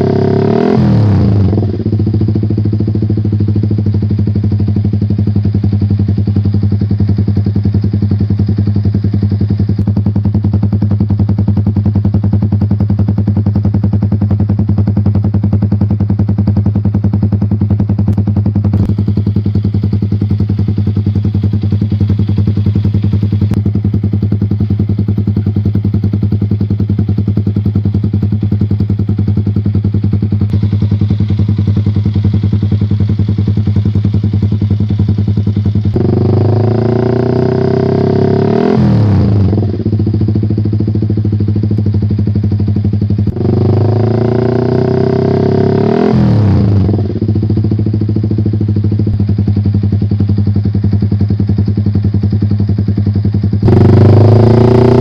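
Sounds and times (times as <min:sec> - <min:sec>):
motorcycle idling: 0:00.0 - 0:55.0
motorcycle throttle blip: 0:07.7 - 0:10.4, 0:17.8 - 0:25.5, 0:30.2 - 0:34.3.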